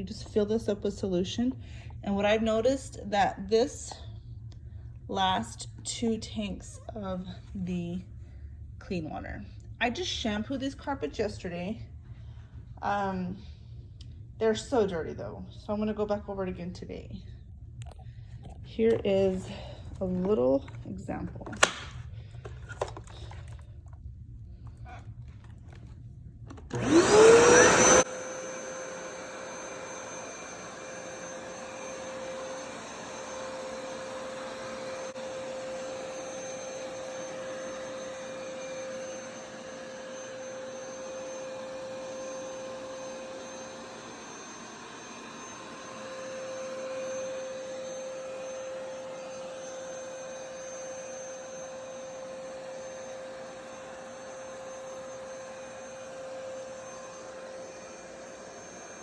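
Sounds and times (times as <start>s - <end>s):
carpet shampooer motor whining: 18.8s - 23.6s, 26.5s - 59.0s.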